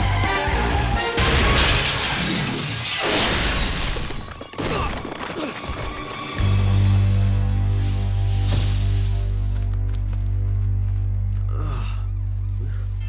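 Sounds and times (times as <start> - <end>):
dramatic orchestral music: 0.0 - 13.0
truck crash: 1.0 - 9.7
glass shattering: 1.2 - 9.4
loud low sustained chord: 6.7 - 13.0.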